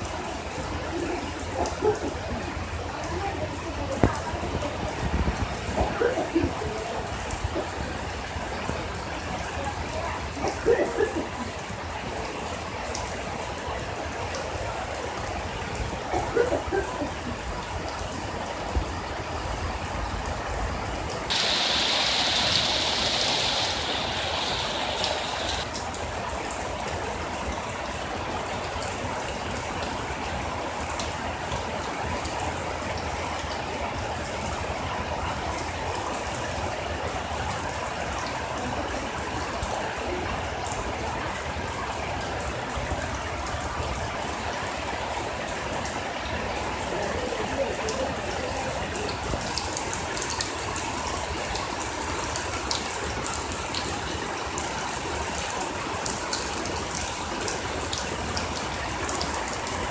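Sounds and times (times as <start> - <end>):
heavy rain on pond and leaves: 0.0 - 59.9
loud high-pitched hiss: 21.3 - 25.7.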